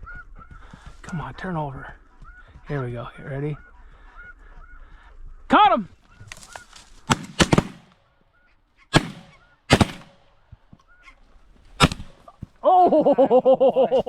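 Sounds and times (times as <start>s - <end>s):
shotgun blasts: 7.1s - 8.0s, 8.9s - 10.3s, 11.8s - 12.2s.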